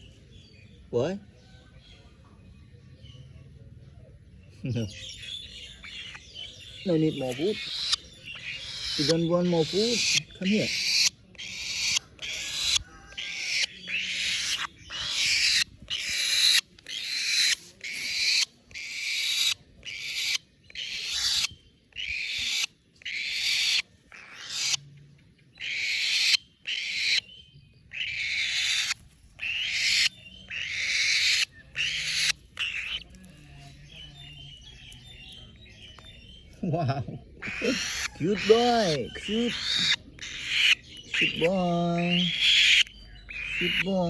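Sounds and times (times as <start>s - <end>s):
young falcon screeching: 7.1s - 24.8s, 25.6s - 27.2s, 27.9s - 33.0s, 37.4s - 43.9s.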